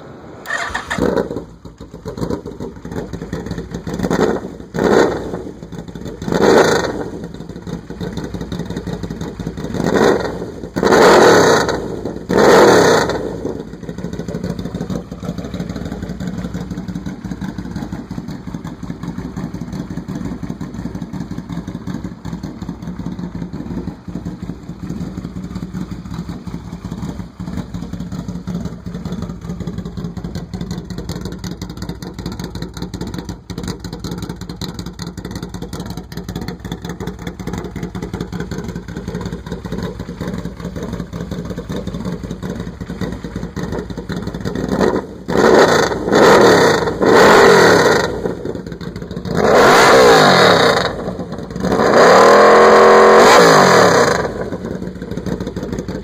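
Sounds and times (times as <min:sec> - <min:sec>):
motorcycle engine starting: 0:00.0 - 0:56.0
motorcycle throttle blips: 0:00.4 - 0:12.3
motorcycle engine idling: 0:00.4 - 0:56.0.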